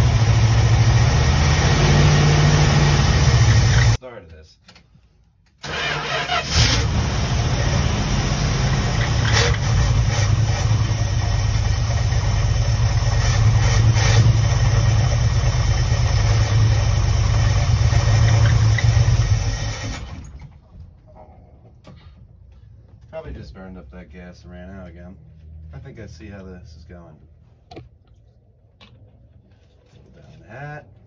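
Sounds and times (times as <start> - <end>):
engine running and sputtering out: 0.0 - 4.0, 5.6 - 20.3.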